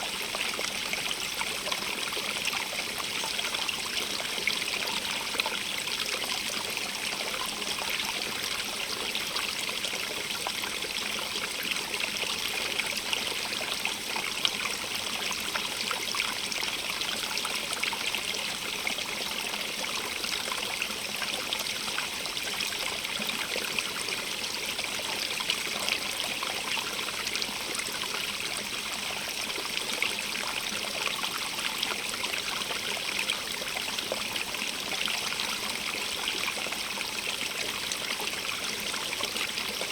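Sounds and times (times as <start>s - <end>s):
stream of running water: 0.0s - 39.9s.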